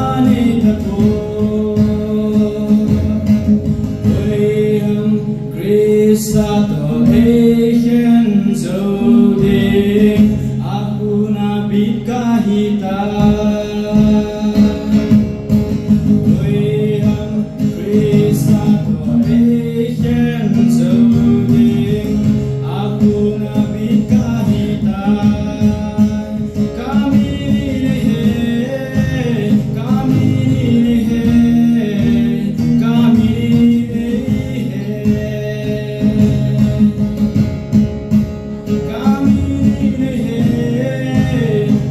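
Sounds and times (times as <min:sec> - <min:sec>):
person singing: 0:00.0 - 0:15.1
guitar accompaniment: 0:00.0 - 0:41.9.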